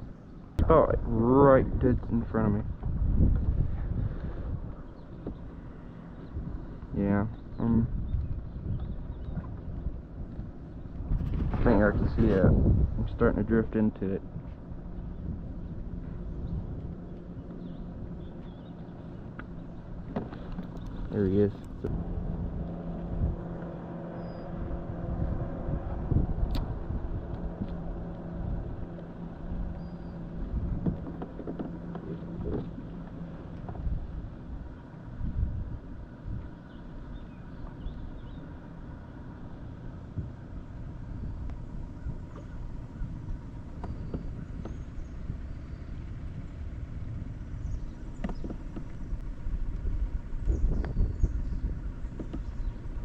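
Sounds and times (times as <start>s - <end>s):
low uneven rumble: 0.0s - 53.0s
motor hum: 0.0s - 53.0s.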